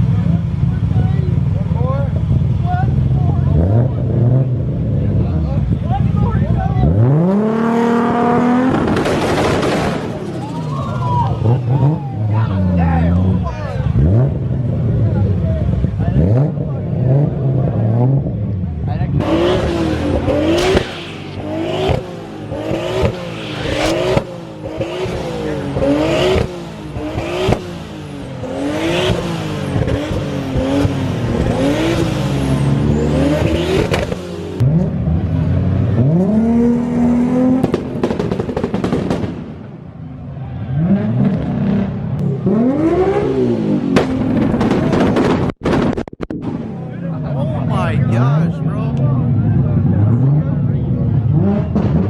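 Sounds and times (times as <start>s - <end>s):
car engine revving: 19.0s - 37.8s
exhaust pops and bangs: 43.9s - 46.6s.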